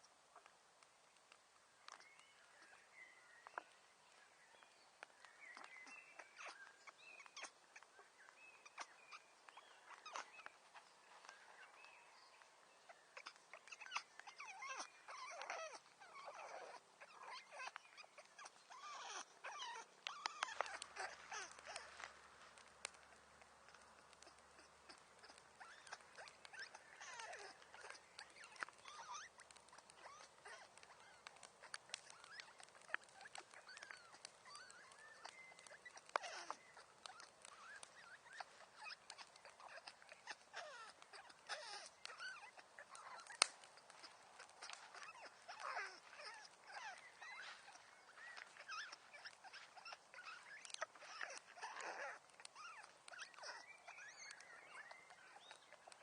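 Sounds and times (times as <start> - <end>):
wood fire crackling: 0.0 - 8.4, 19.3 - 54.4.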